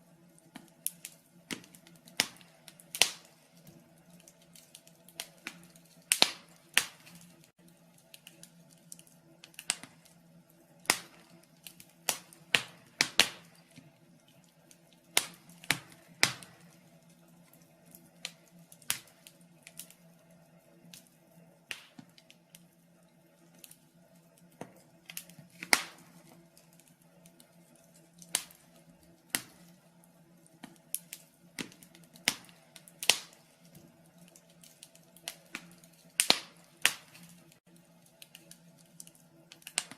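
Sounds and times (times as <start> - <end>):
wood fire crackling: 0.0 - 39.9
sharp pops and snaps: 0.4 - 10.2, 10.8 - 16.7, 21.7 - 22.7, 24.4 - 27.5, 28.2 - 28.7, 30.4 - 37.6, 38.2 - 39.9.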